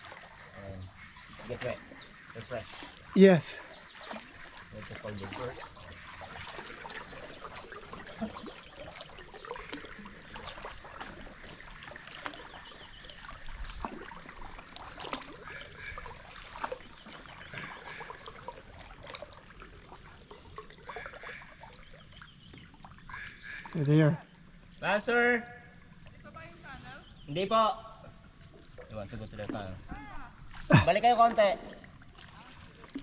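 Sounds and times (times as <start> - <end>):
water drips and splashes: 0.0 - 24.3, 25.8 - 33.0
water trickling and lapping: 0.0 - 33.0.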